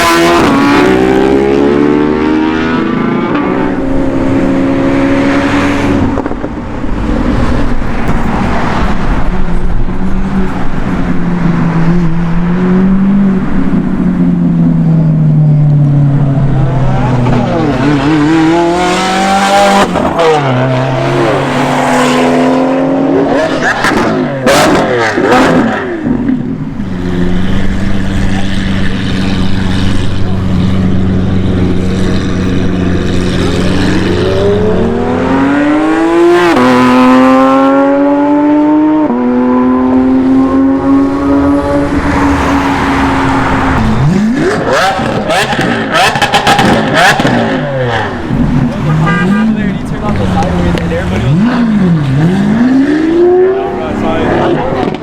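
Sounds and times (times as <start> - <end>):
car engine accelerating hard: 0.0 - 55.0.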